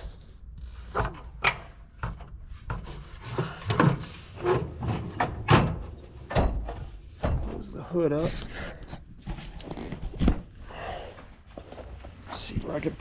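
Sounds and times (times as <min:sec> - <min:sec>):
knocks and clunks on tractor: 0:03.5 - 0:07.7.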